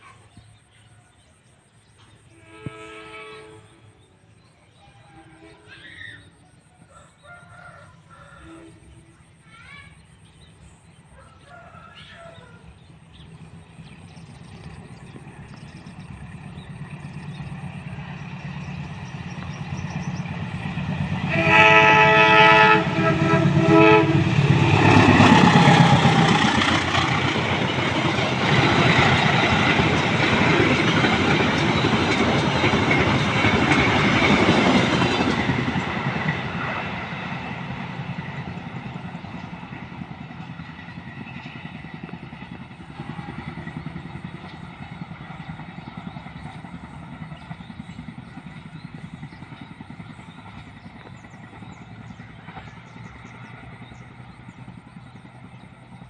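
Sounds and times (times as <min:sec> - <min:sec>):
train passing with rushing rumble: 0:00.0 - 0:56.0
train horn blasts: 0:02.3 - 0:04.0, 0:04.8 - 0:06.0, 0:08.4 - 0:09.1, 0:21.1 - 0:25.9.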